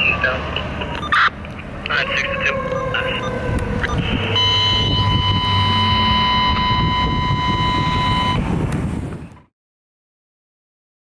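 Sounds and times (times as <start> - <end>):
fire truck siren: 0.0 - 8.7
truck engine rumble: 0.0 - 9.5
high horn tone: 2.1 - 8.4.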